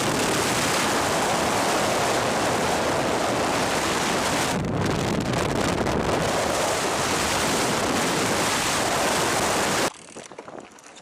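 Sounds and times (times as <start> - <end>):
stormy weather rushing: 0.0 - 9.9
wind buffeting microphone: 0.0 - 10.8.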